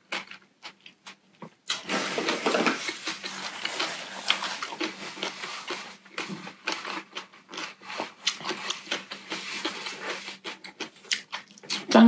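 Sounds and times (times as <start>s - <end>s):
chewing with wet clicks and smacks: 0.0s - 1.9s, 2.9s - 12.0s.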